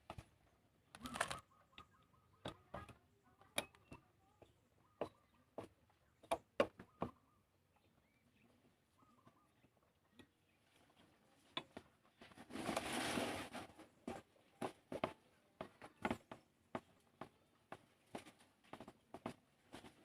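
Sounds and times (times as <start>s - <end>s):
faint bird chirps: 1.0s - 10.9s.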